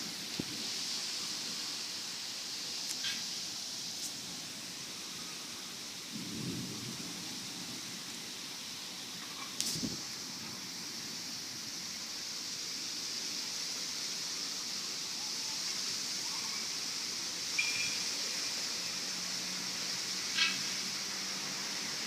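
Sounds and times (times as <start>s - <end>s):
strong wind hissing: 0.0s - 15.0s.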